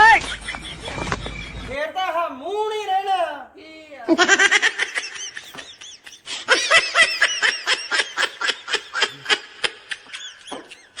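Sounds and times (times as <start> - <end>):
high-pitched snickering laughter: 4.1 - 11.0.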